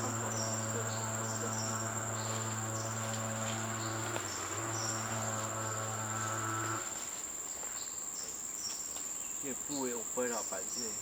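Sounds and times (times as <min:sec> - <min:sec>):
steady low hum: 0:00.0 - 0:07.3
high-pitched insect drone: 0:00.0 - 0:08.3.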